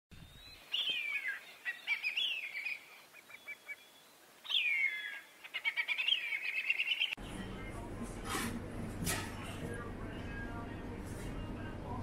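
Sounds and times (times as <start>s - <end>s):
bird warbling phrases: 0.8s - 7.2s.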